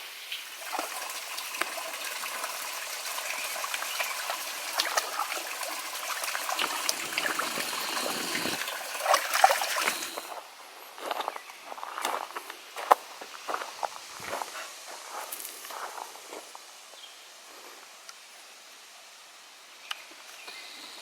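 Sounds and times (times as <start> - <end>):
brook trickling over stones: 0.1 - 10.5
small water splashes: 0.3 - 10.4.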